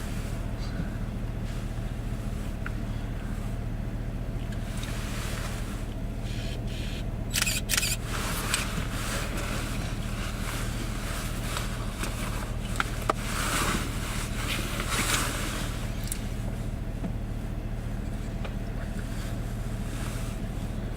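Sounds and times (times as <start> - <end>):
truck idling hum: 0.0 - 20.9.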